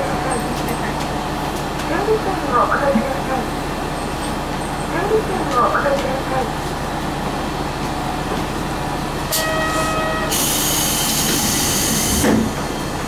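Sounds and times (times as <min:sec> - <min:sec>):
diesel railcar rumbling: 0:00.0 - 0:13.0.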